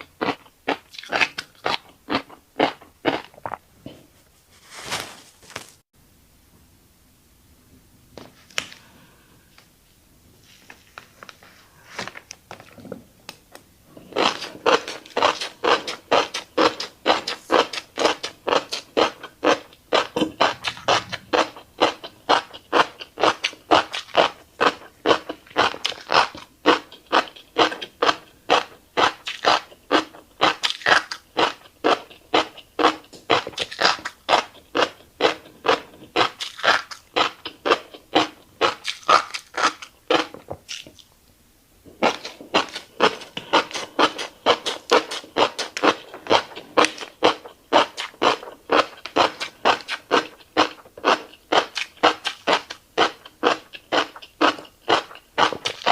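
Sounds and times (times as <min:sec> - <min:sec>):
wet chewing: 0:14.0 - 0:41.1, 0:42.0 - 0:55.9.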